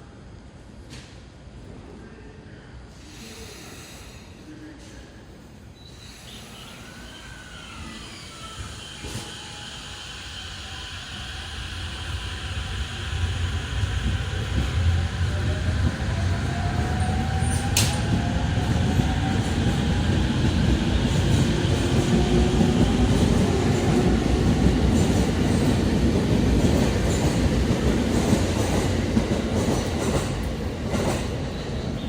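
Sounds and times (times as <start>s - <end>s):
train wheels rumbling on rail: 11.0s - 32.0s.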